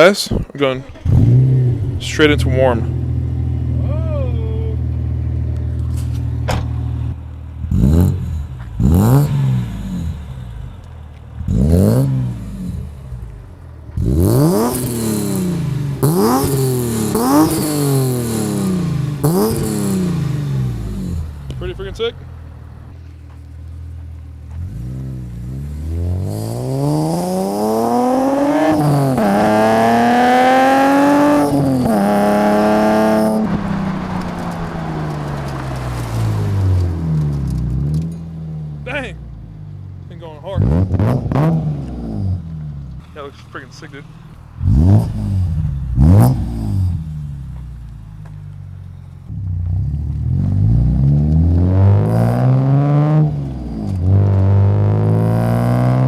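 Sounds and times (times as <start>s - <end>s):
car engine accelerating hard: 0.0s - 56.0s.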